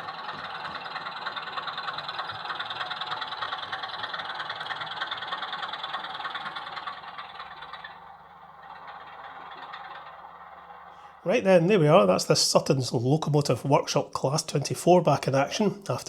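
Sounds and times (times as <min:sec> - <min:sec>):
model locomotive diesel engine sound: 0:00.0 - 0:16.0.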